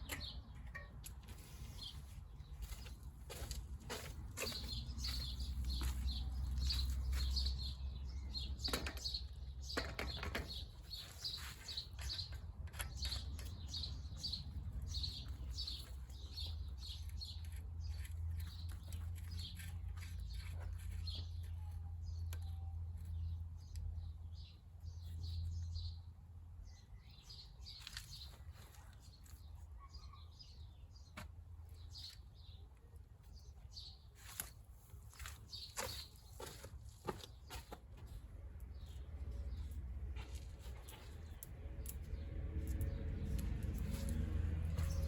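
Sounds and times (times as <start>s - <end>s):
bird chirping: 0.0s - 31.1s.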